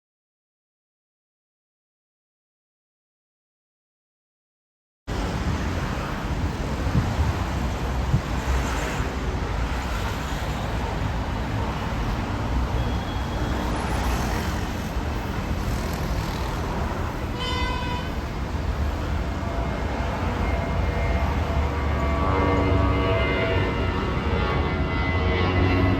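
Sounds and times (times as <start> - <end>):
low rumble of road traffic: 5.1 - 25.9
car horn toot: 17.4 - 18.2.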